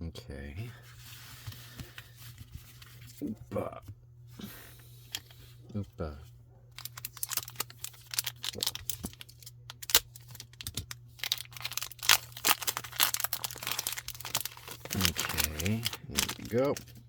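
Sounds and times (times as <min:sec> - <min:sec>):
steady low hum: 0:00.0 - 0:17.0
foil wrapper crinkling: 0:06.7 - 0:17.0.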